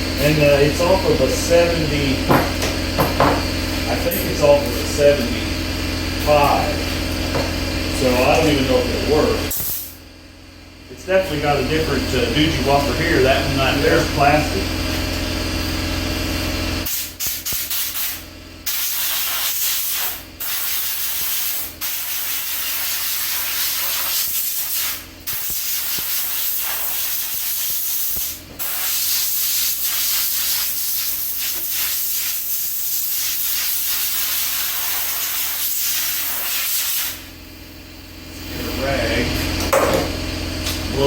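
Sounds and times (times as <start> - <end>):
compressed air hissing from blowgun: 9.5 - 10.0, 16.9 - 37.3.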